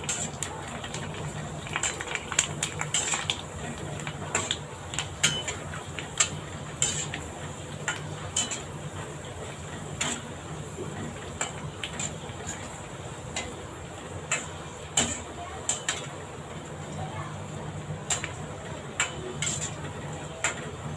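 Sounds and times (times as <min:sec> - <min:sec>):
frying in hot oil: 0:00.0 - 0:20.9
metal utensil scraping a pan: 0:06.2 - 0:07.2, 0:07.9 - 0:08.8, 0:10.0 - 0:10.3, 0:11.4 - 0:12.7, 0:14.3 - 0:16.1, 0:19.0 - 0:19.8.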